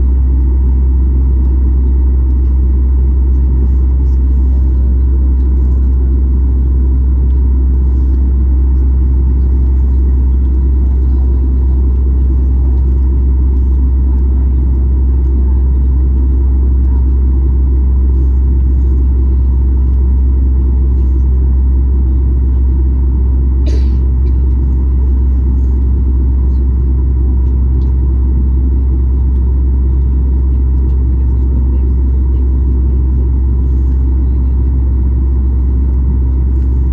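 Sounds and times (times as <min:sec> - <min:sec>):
airplane cabin rumble: 0:00.0 - 0:36.9.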